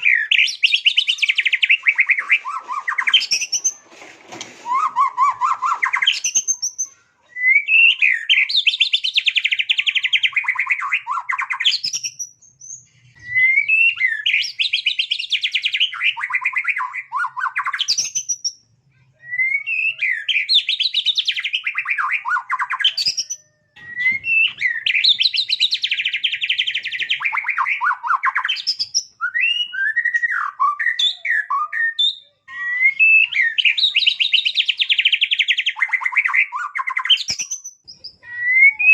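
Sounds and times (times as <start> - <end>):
songbird singing trills: 19.3 - 38.9.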